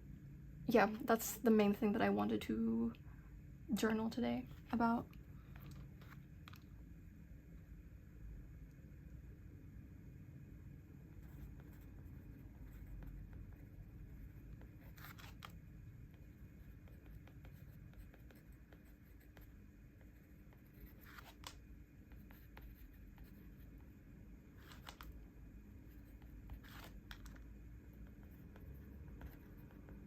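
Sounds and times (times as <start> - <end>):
scratchy paper strokes: 14.6 - 15.5, 20.8 - 21.6, 24.6 - 25.2, 26.1 - 27.4.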